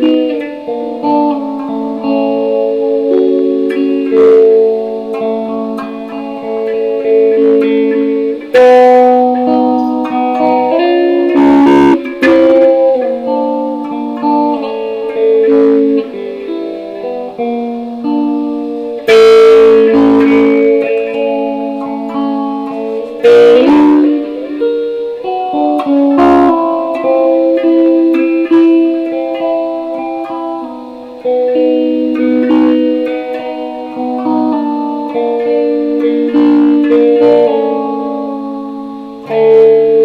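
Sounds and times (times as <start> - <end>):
electric guitar chords: 0.0 - 40.0.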